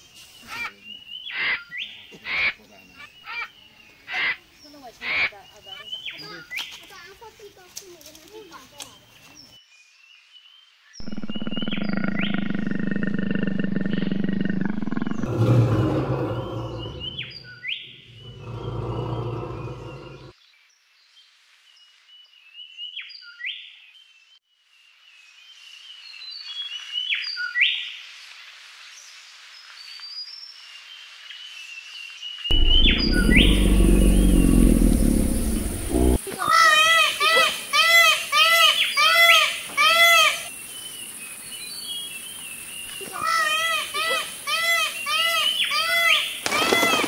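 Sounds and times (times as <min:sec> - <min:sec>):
caged birds chirping: 0:13.9 - 0:20.3
loud low rumbling roar: 0:14.6 - 0:17.4, 0:18.2 - 0:20.3, 0:32.5 - 0:36.2.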